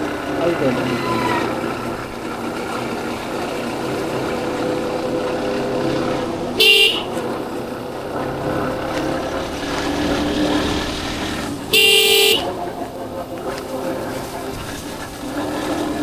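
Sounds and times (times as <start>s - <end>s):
motorcycle engine droning: 0.0s - 16.0s
motorcycle horn toot: 6.6s - 7.6s, 11.7s - 12.7s.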